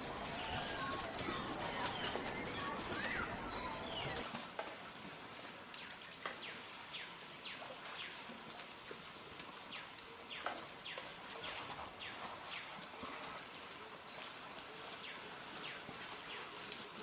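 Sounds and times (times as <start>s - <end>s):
bird chirping: 0.0s - 4.2s.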